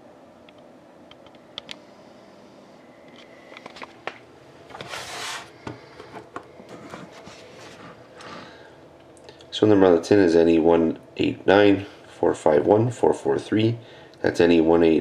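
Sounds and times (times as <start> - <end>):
low room hum: 0.0 - 15.0
packaging rustling scrape: 4.7 - 5.6.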